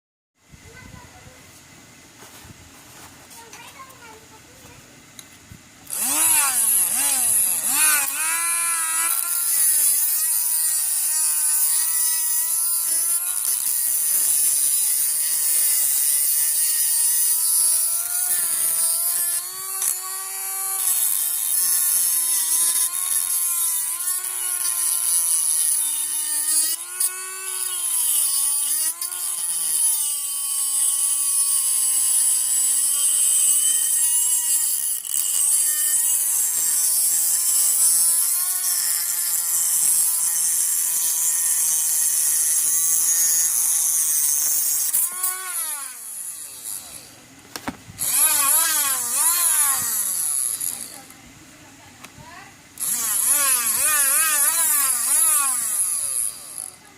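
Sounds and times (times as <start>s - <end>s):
mini electric grinder motor whine: 5.8s - 51.2s, 52.3s - 56.9s
high hiss of grinding: 5.9s - 47.2s.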